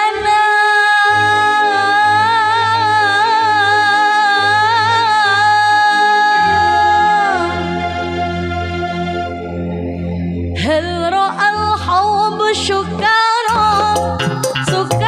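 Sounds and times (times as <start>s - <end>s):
band accompaniment with bass: 13.5s - 15.0s.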